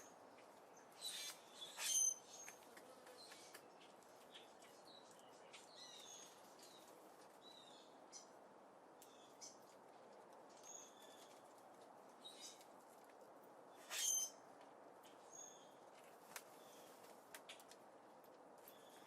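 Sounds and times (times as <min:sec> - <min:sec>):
small birds chirping: 0:00.0 - 0:08.4, 0:09.0 - 0:09.8, 0:10.5 - 0:12.7.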